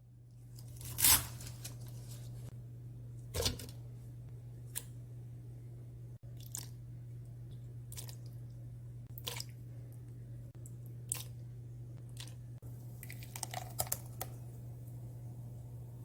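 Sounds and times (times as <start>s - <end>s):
steady low hum: 0.0s - 16.0s
crunchy cabbage handling: 0.6s - 2.5s.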